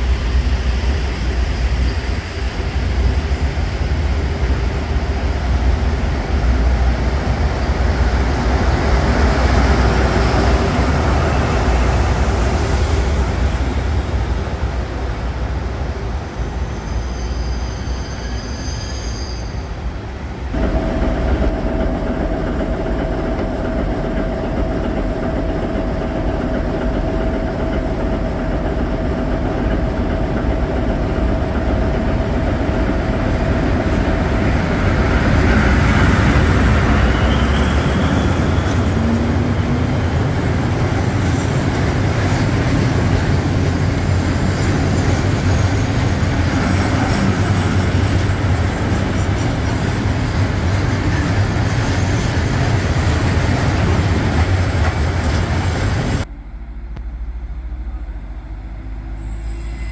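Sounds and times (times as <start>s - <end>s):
diesel locomotive engine: 0.0s - 59.9s
high squeals: 16.6s - 19.8s, 36.0s - 39.1s, 59.2s - 59.9s.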